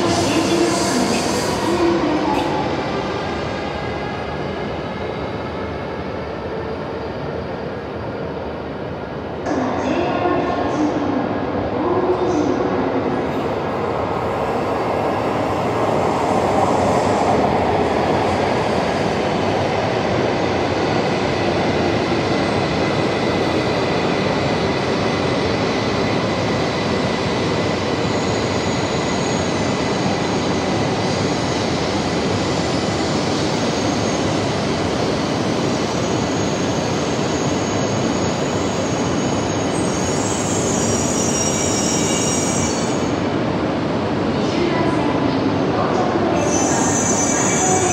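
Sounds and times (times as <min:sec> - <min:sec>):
train running and wheel noise: 0:00.0 - 0:47.9
high brake squeal: 0:36.0 - 0:43.1, 0:46.4 - 0:47.9.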